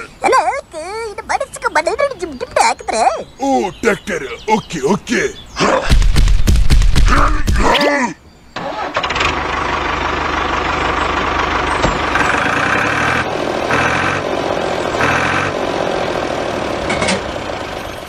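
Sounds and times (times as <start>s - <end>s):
tractor engine chugging: 8.6s - 18.0s.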